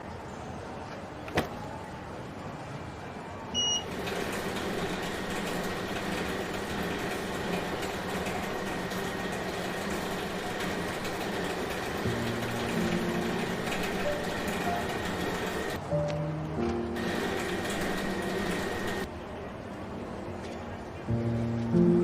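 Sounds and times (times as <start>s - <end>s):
short electronic beep: 3.6s - 3.9s
wrapping machine humming: 3.7s - 15.8s, 17.0s - 19.1s.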